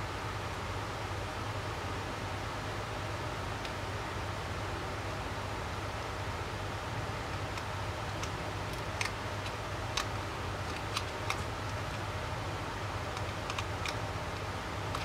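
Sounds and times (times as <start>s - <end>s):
steady low hum: 0.0s - 15.0s
small parts clicking and tapping: 7.3s - 12.1s, 13.0s - 15.0s.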